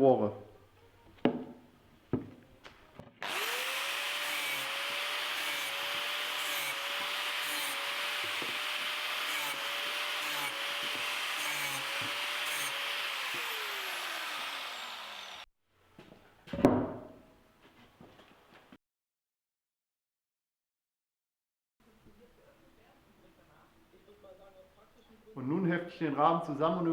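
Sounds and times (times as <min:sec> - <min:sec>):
power tool grinding metal: 0:03.2 - 0:15.5.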